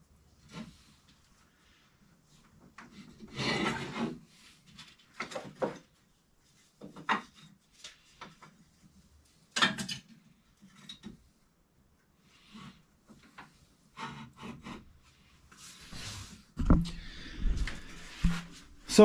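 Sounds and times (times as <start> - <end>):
objects scraping and rubbing: 2.9 - 5.0, 12.3 - 19.0.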